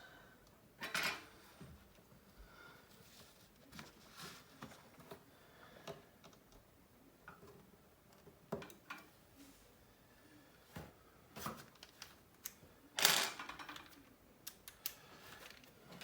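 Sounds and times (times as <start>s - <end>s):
small clicks of hand tools: 13.8s - 15.7s.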